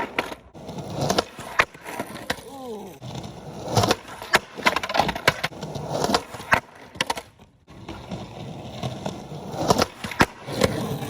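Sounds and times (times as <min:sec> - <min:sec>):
skateboard clacking: 0:00.0 - 0:11.0
skateboard wheels rolling: 0:00.0 - 0:11.0.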